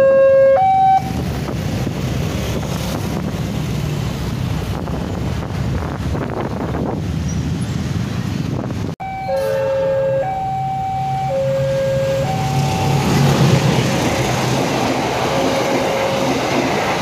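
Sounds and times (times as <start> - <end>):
level crossing alarm: 0.0 - 1.1, 9.0 - 13.3, 15.3 - 16.5
train rumbling past: 0.0 - 17.0.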